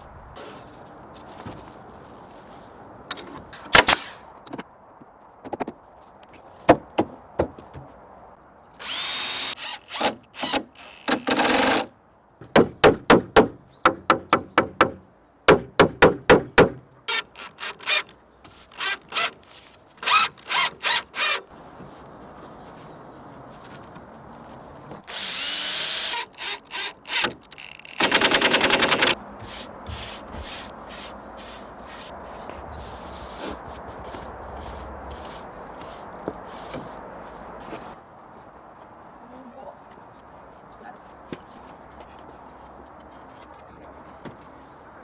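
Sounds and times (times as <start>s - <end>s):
power drill drilling wood: 3.8s - 4.2s, 8.8s - 11.9s, 20.0s - 21.4s, 25.1s - 29.2s.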